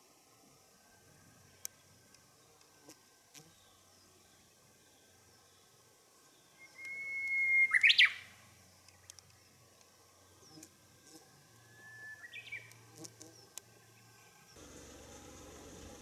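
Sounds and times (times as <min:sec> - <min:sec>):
songbird singing: 0:00.7 - 0:16.0.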